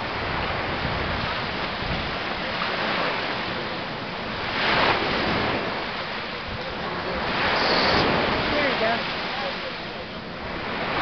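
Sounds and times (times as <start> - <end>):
ocean surf washing: 0.0 - 11.0
wave breaking: 0.0 - 11.0.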